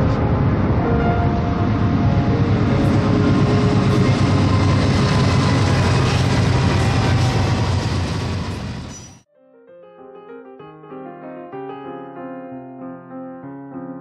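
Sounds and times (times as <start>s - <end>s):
train rumbling and clattering past: 0.0s - 9.3s.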